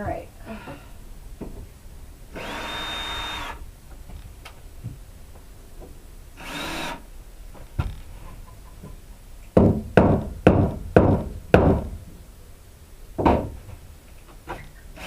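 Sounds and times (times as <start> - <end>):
cordless drill motor whine: 2.4 - 3.6, 6.4 - 7.0.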